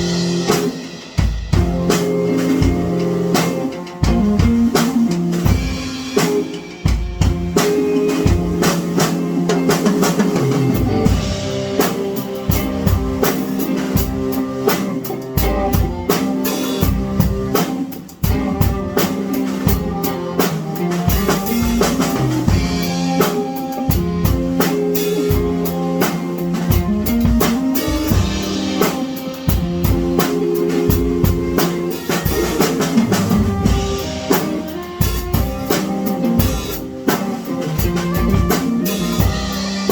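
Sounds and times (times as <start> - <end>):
drum kit beat: 0.0 - 39.9.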